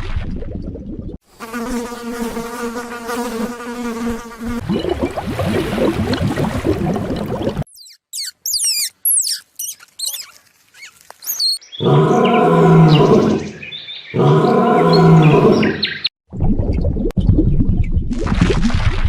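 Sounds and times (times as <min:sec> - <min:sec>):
high chirping and whistling calls: 0:07.7 - 0:14.2
large animal deep calls: 0:11.8 - 0:16.0.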